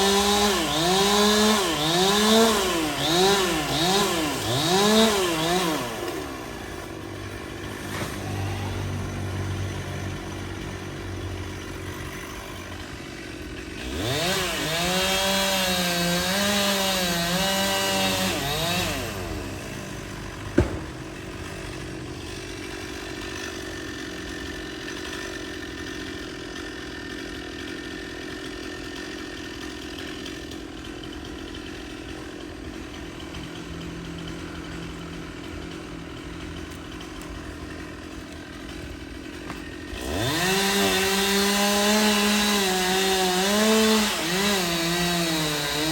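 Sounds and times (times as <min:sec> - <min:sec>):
chainsaw revving: 0:00.0 - 0:45.9
sharp knock: 0:20.5 - 0:21.0.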